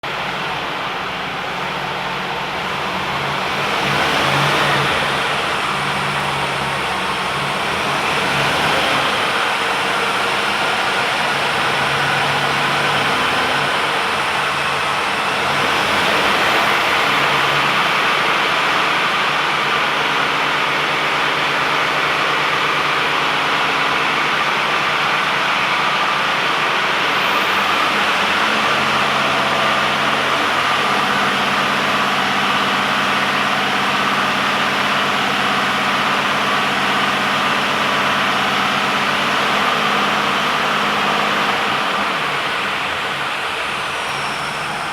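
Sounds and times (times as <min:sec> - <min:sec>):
truck diesel engine idling: 0:00.0 - 0:44.9.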